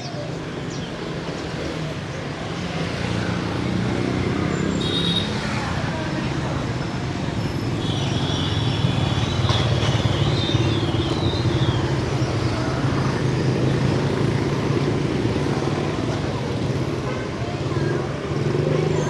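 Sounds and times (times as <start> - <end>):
motorbike and scooter engines: 0.0 - 19.0.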